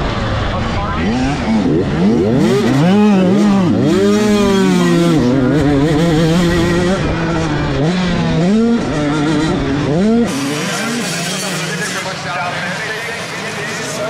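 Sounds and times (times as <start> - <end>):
motocross bike engines revving: 0.0 - 14.0.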